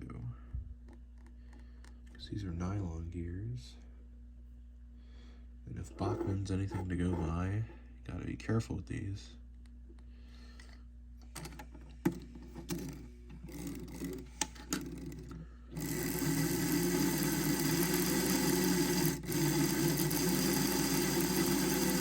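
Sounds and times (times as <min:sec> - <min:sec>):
small electric motor and gears: 0:15.8 - 0:22.0.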